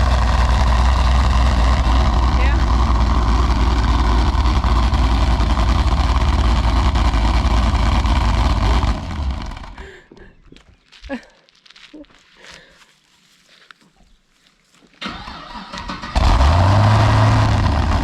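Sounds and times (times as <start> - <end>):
car engine with whistling exhaust: 0.0 - 9.8, 16.2 - 18.0.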